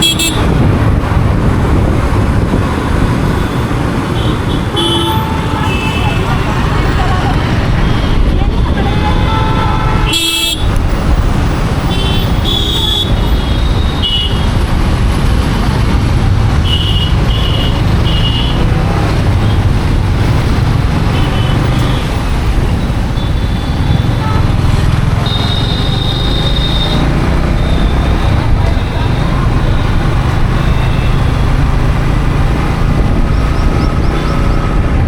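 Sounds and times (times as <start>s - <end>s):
vehicle horns tooting: 0.0s - 0.6s, 3.4s - 10.8s, 11.8s - 14.5s, 16.6s - 18.7s, 22.9s - 31.5s
motorcycle road noise: 0.0s - 35.0s.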